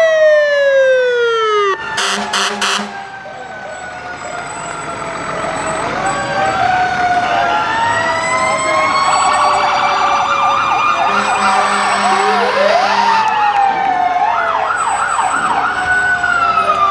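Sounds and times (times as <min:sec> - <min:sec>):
fire truck sirens wailing: 0:00.0 - 0:16.9
low horn: 0:02.0 - 0:03.4.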